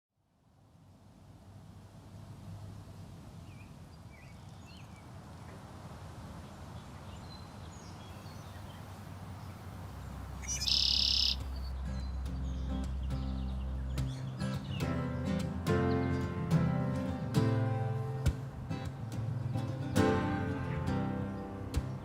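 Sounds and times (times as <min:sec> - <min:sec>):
soft outdoor ambience: 0:00.2 - 0:22.0
loud high bird call: 0:10.4 - 0:11.6
faint bird chirps: 0:10.4 - 0:15.4.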